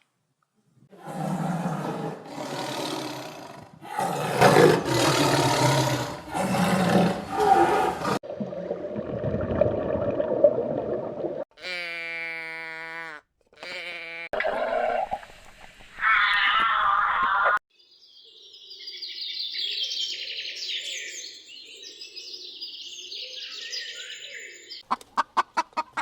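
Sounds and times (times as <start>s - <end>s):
clear pitched animal call: 11.6s - 14.3s.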